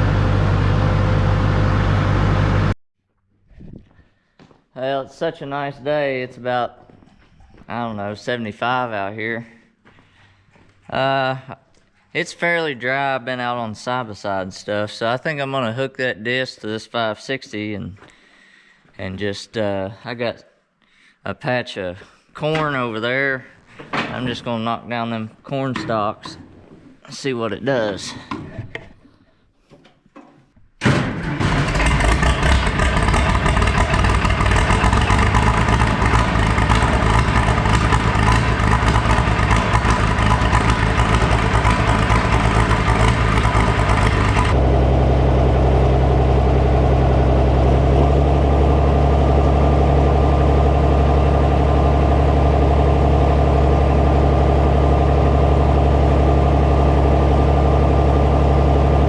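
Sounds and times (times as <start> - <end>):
tractor engine running: 0.0 - 2.8, 31.2 - 59.0.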